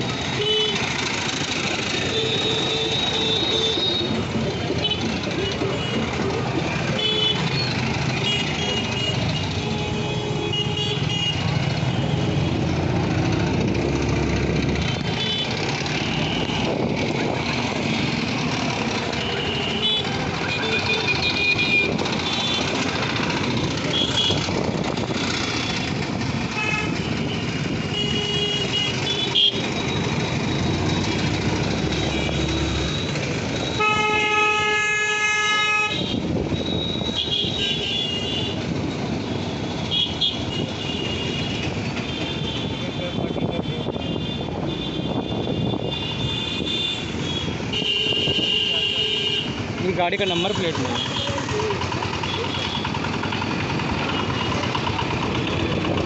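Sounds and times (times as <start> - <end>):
engine and road noise: 0.0 - 56.0
long loud horn blast: 33.8 - 36.2.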